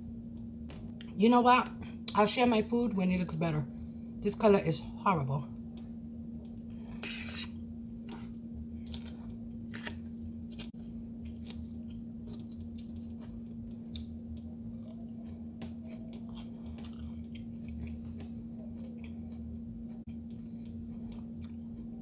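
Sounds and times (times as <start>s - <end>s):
low hum: 0.0s - 22.0s
person chewing food: 5.7s - 22.0s.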